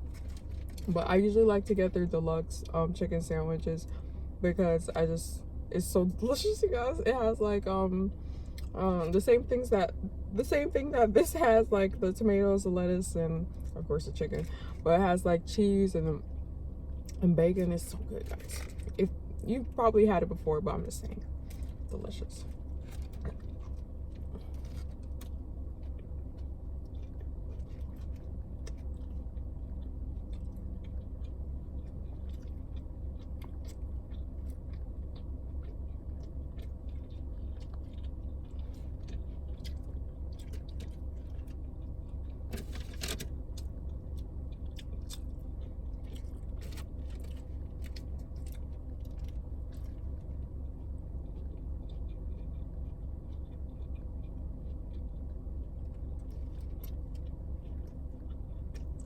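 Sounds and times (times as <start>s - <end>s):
steady low hum: 0.0s - 59.0s
chewing and biting mouth sounds: 20.8s - 59.0s.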